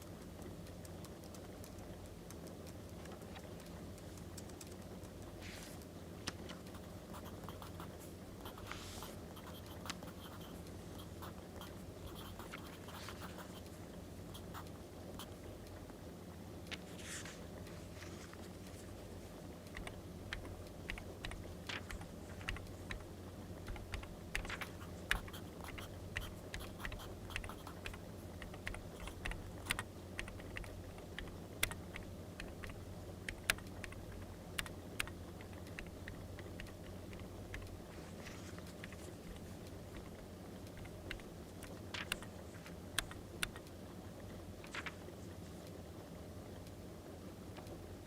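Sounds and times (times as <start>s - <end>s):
low background hum: 0.0s - 48.0s.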